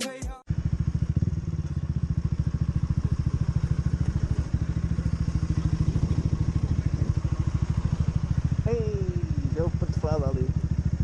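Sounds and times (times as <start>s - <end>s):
motorcycle engine running: 0.5s - 11.0s.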